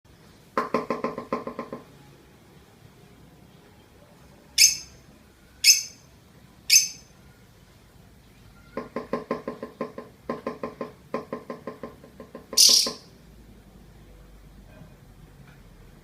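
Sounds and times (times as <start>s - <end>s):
bird high chirps: 4.6s - 5.0s, 5.6s - 6.1s, 6.7s - 7.1s, 12.5s - 13.1s
bird fast chatter: 12.6s - 13.1s.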